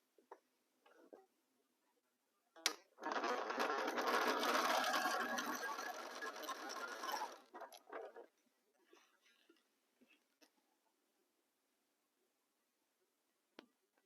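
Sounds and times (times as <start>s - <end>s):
sewing machine stitching: 3.0s - 8.3s.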